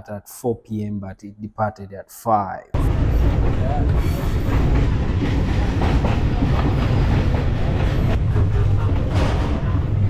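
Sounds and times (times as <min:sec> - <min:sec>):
train carriage rumble: 0:02.8 - 0:10.0
wheels clattering on rails: 0:02.8 - 0:10.0.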